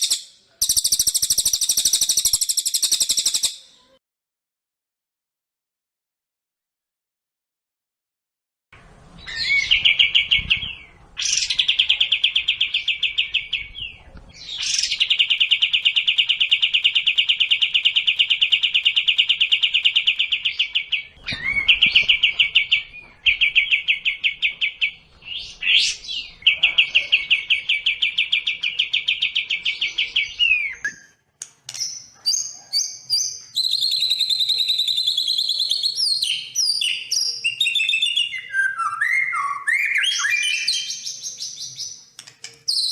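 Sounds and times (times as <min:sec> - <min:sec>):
songbird rattling trills: 0:00.0 - 0:03.5
bird whistled notes: 0:00.0 - 0:03.6.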